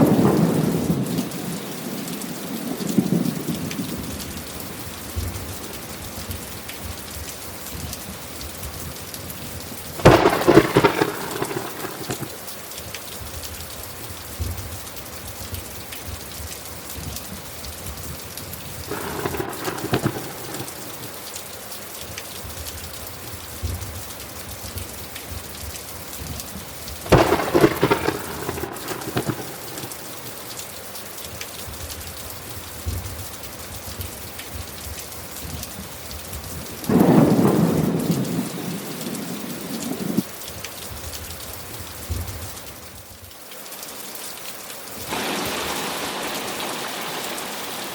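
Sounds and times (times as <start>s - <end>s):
crackling thunderclaps: 0.0s - 16.3s, 17.0s - 21.3s, 24.7s - 30.5s, 33.9s - 40.4s, 45.0s - 47.9s
heavy rain: 0.0s - 47.9s.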